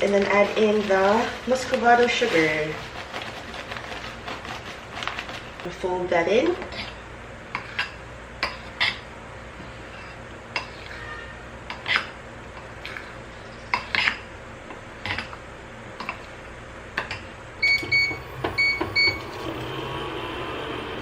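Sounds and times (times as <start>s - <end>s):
utensil scraping a mixing bowl: 0.0s - 5.7s, 6.5s - 14.3s.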